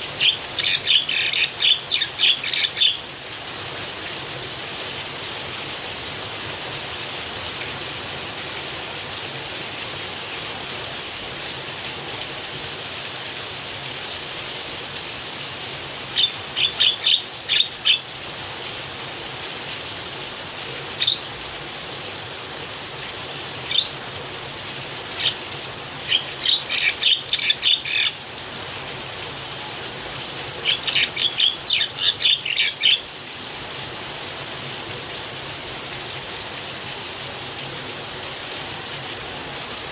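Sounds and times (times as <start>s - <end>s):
bird chattering calls: 0.0s - 3.1s, 16.1s - 18.1s, 21.0s - 21.3s, 23.6s - 24.0s, 25.1s - 28.2s, 30.6s - 33.1s
rain falling: 0.0s - 39.9s.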